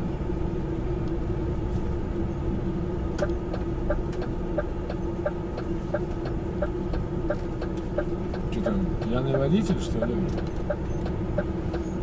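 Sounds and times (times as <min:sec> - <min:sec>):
truck engine humming: 0:02.5 - 0:12.0.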